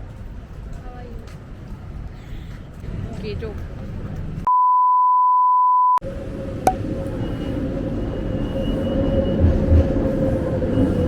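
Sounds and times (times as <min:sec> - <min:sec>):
censor bleep tone: 0:04.5 - 0:06.0.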